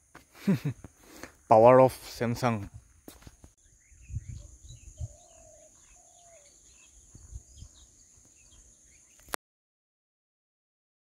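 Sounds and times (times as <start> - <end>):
small birds chirping: 0.0 - 9.4
low whistled bird calls: 3.6 - 9.4.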